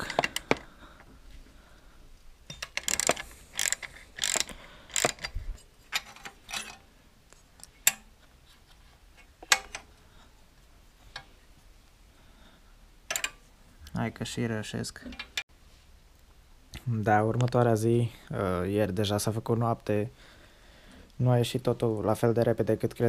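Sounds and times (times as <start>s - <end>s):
socket ratchet clicking: 2.5s - 5.4s.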